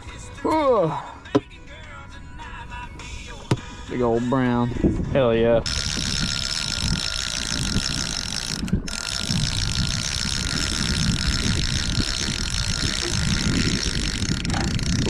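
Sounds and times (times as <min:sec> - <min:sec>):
low rumble: 0:04.6 - 0:15.0
fishing reel ratcheting whirr: 0:05.6 - 0:15.0.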